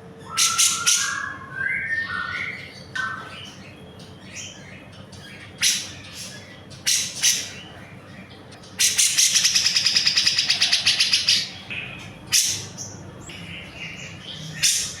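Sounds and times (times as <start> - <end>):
bird rattling trill: 8.8 - 11.5.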